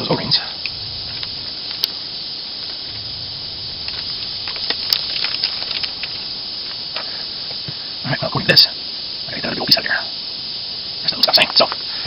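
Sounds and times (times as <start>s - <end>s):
light ticks of small parts: 0.0s - 3.1s, 3.8s - 8.0s, 11.0s - 12.0s
steady hiss: 0.0s - 12.0s
sharp clicks: 3.8s - 7.8s.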